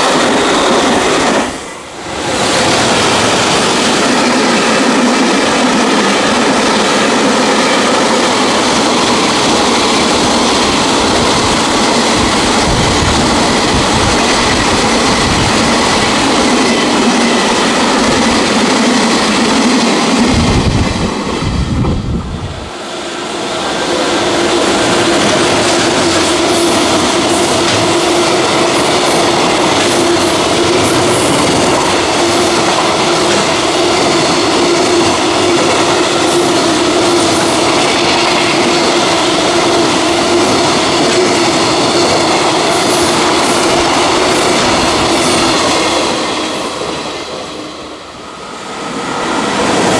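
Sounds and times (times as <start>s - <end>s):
freight train wheels rattling on rail: 0.0s - 49.9s.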